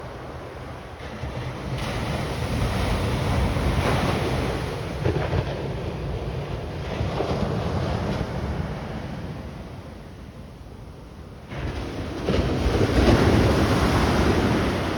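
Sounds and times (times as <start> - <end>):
ocean surf: 0.0 - 14.9
wind buffeting microphone: 0.0 - 14.9.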